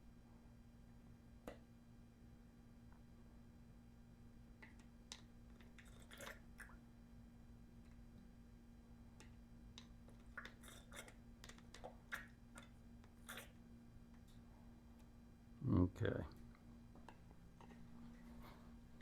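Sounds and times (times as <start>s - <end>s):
faint clicks and scrapes of handling: 4.6s - 6.8s, 9.2s - 15.1s, 16.4s - 19.0s.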